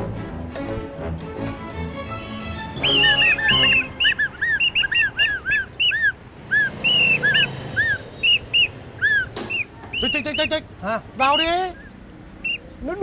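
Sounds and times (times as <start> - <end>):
bird chirping: 2.8 - 12.9.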